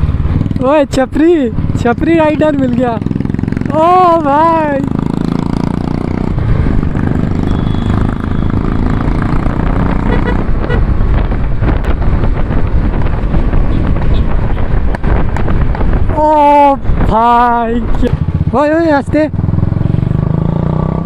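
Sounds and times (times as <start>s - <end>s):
motorcycle engine exhaust note: 3.0s - 16.0s.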